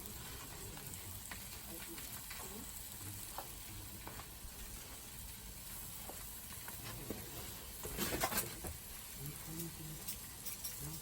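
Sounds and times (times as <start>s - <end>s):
food sizzling on griddle: 0.0s - 11.0s
scraping and clatter: 6.6s - 8.8s.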